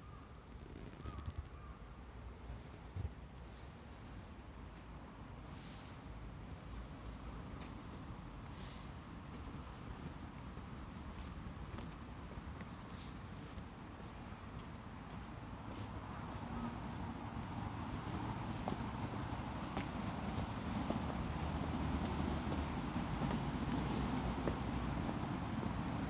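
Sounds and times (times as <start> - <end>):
insects chirping: 0.0 - 26.0.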